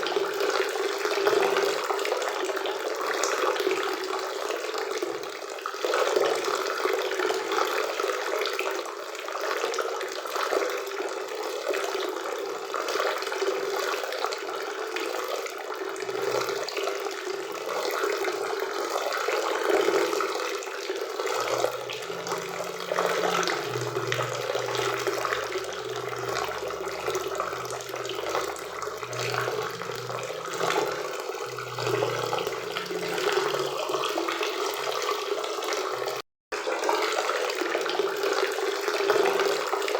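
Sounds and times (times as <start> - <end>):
faint low hum: 21.2 - 34.4.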